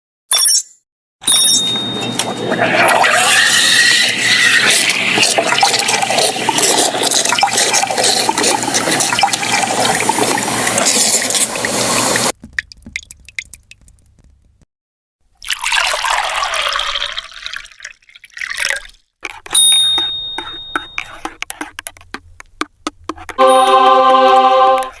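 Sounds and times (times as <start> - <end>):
brief pitched tone: 0.3 - 2.6, 23.4 - 25.0
thin electronic tone: 0.3 - 2.6, 19.6 - 21.2, 23.4 - 24.9
coffee machine dispensing liquid: 4.0 - 12.3.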